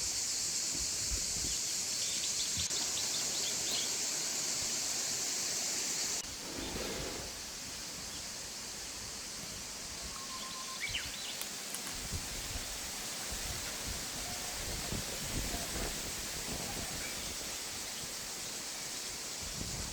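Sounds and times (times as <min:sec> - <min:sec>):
high insect buzz: 0:00.0 - 0:19.9
wind and rustling: 0:00.0 - 0:19.9
faint bird chirps: 0:09.5 - 0:11.4.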